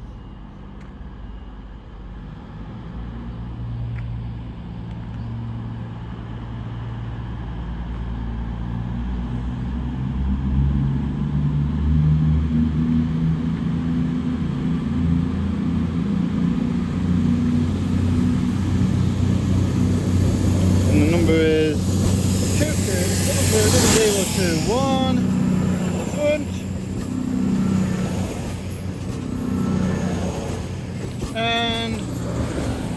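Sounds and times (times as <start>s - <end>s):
diesel train engines under power: 13.2s - 32.9s.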